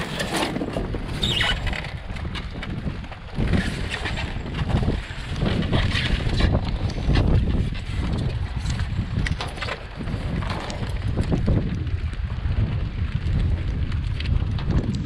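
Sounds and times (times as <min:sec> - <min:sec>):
scrap scraping and knocking: 0:00.0 - 0:02.7
muffled rumbling and crackling: 0:00.0 - 0:15.0
wind noise: 0:00.0 - 0:15.0.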